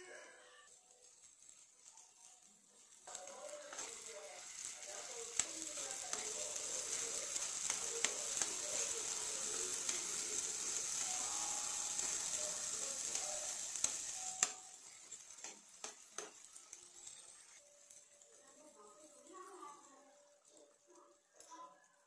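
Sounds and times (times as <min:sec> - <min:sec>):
vegetables sizzling in oil: 0:00.0 - 0:22.0
metal spatula scraping pan: 0:12.0 - 0:18.5.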